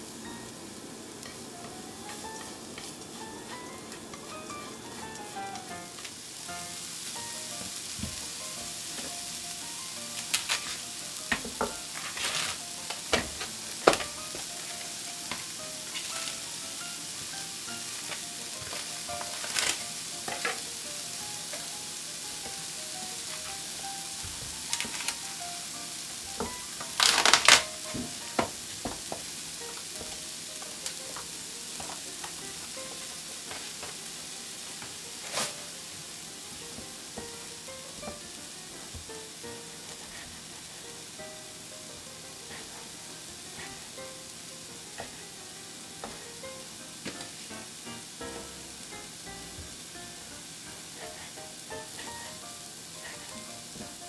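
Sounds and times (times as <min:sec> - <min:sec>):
food sizzling in a frying pan: 0:00.0 - 0:54.0
utensil scraping a pan: 0:11.4 - 0:12.6.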